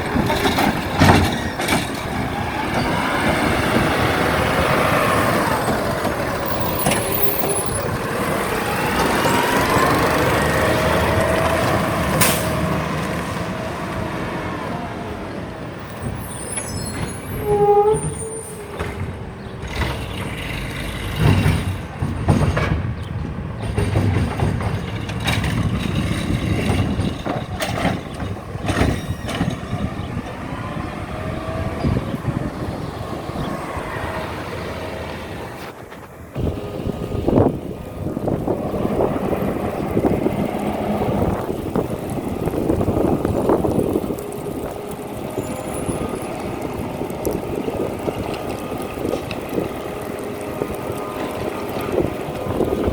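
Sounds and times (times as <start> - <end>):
knocks and clanks: 0.0 - 4.5, 18.7 - 30.4
garbage truck diesel engine: 0.0 - 52.9
air brake release: 12.2 - 12.7
short squeal: 16.0 - 19.0.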